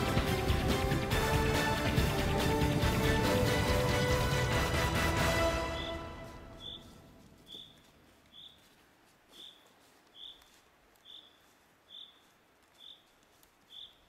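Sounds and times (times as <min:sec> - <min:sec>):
bird chirping: 0:05.4 - 0:14.0.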